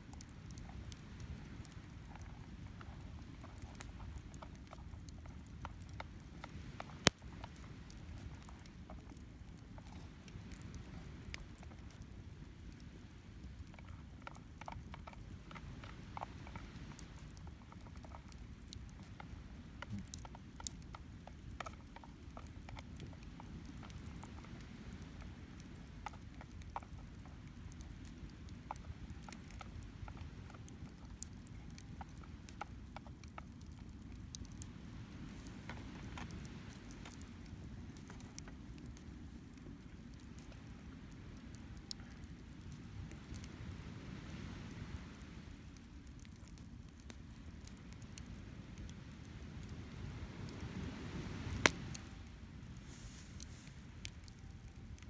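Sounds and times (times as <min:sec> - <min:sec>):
campfire crackling and popping: 0:00.0 - 0:55.0
wind: 0:00.0 - 0:55.0.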